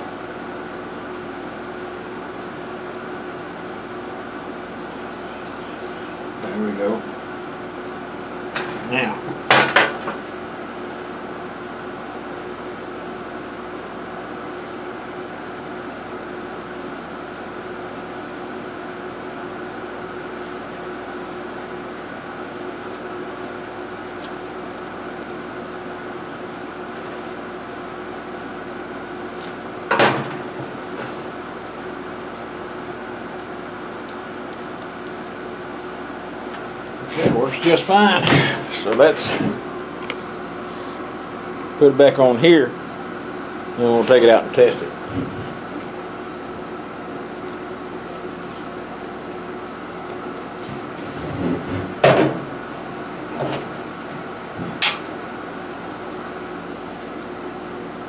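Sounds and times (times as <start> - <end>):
machine hum: 0.0 - 58.0
tools and parts clattering: 8.6 - 10.3, 29.4 - 31.4, 50.1 - 55.2.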